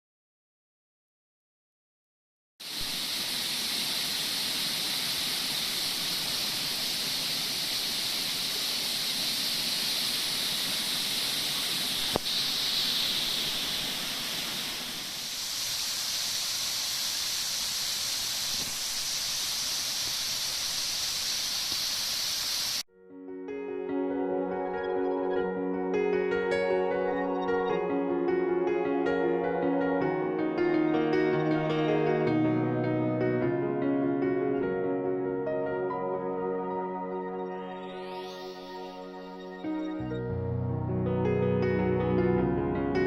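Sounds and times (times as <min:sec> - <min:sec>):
waterfall rushing: 0:02.6 - 0:22.8
music: 0:22.9 - 0:43.0.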